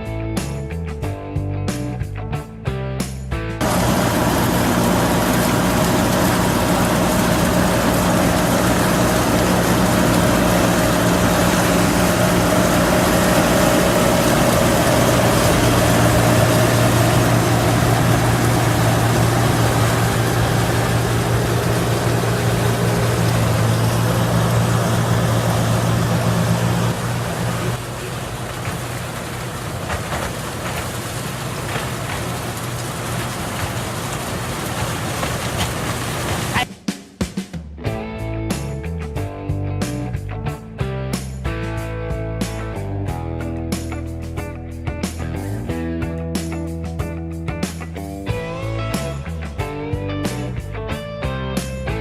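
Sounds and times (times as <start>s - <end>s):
low machinery hum: 3.6s - 36.6s
combine harvester engine drone: 3.6s - 36.7s.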